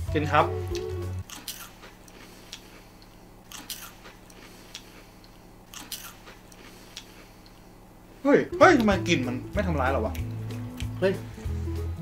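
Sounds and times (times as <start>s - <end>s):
chewing crunchy crackers: 1.3s - 7.7s.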